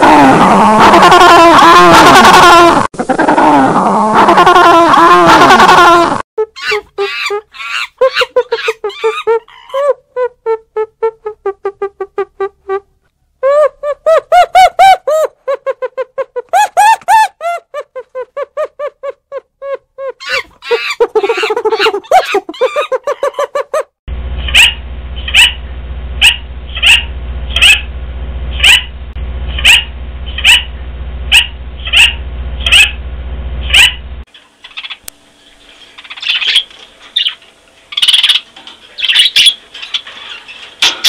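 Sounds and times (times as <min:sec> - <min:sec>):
lorikeet screeching: 0:06.6 - 0:09.8, 0:20.2 - 0:23.2, 0:36.0 - 0:40.4
steady low hum: 0:24.1 - 0:41.0.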